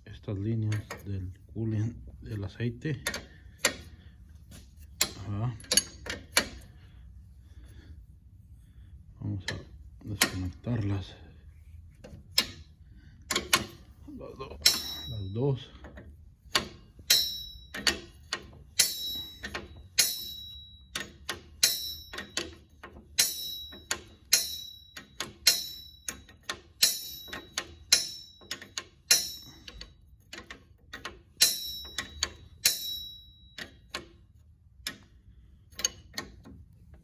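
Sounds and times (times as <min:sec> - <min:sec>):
wrench clinking on metal fittings: 0:04.5 - 0:06.7, 0:13.3 - 0:34.2.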